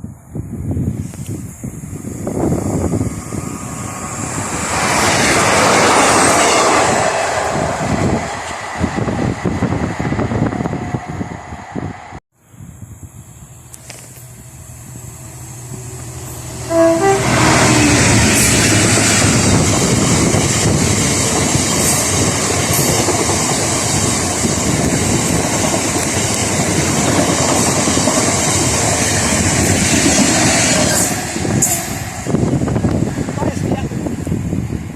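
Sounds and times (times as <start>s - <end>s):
train passing: 0.1s - 12.2s, 12.9s - 34.9s
train horn: 15.7s - 18.9s.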